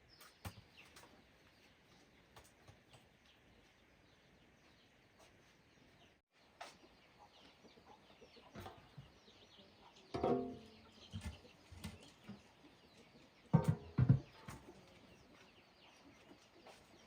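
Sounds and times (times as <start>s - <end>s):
small birds chirping: 0.0s - 17.0s
chickens clucking: 4.7s - 17.0s.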